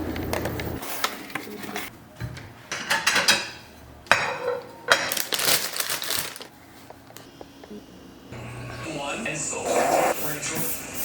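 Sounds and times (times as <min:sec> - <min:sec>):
household objects clattering: 0:02.7 - 0:06.5.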